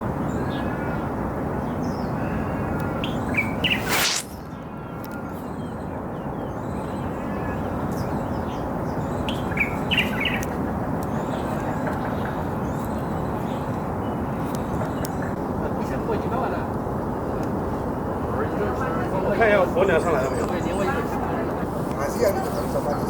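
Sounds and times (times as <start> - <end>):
small birds chirping: 1.7 - 4.4
loud rush of noise: 3.7 - 4.4.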